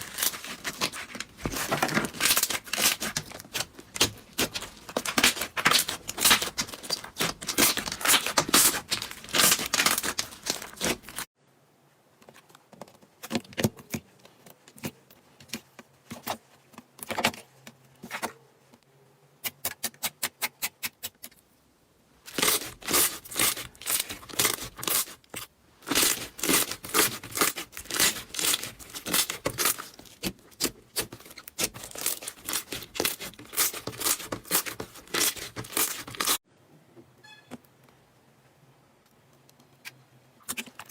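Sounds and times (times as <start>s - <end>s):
slime crackling and popping: 0.0s - 11.3s, 22.3s - 25.1s.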